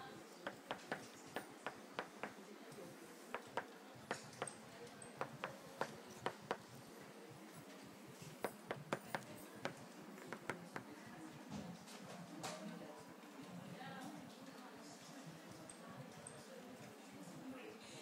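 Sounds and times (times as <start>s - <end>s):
bird tapping on window glass: 5.2s - 6.7s.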